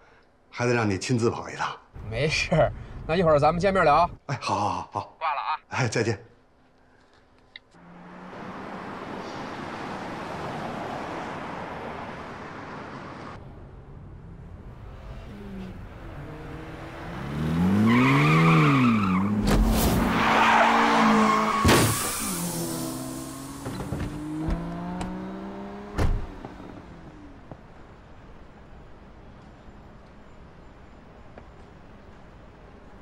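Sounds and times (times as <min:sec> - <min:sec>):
car engine revving: 0:14.7 - 0:27.1.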